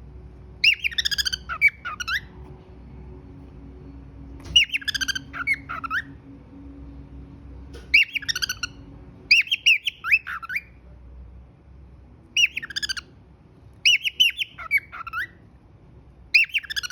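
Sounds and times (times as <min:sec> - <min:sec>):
cockatiel whistling and chirping: 0:00.6 - 0:02.3, 0:04.4 - 0:06.2, 0:07.9 - 0:10.7, 0:12.4 - 0:13.1, 0:13.8 - 0:15.4, 0:16.3 - 0:16.9.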